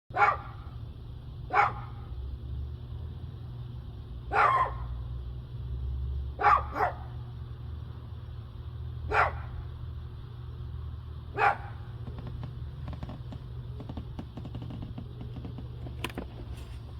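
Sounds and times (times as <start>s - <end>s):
dog barking: 0.1s - 0.8s, 1.5s - 2.1s, 4.3s - 5.0s, 6.4s - 7.2s, 9.1s - 9.6s, 11.3s - 11.9s
steady low rumble: 7.0s - 16.9s.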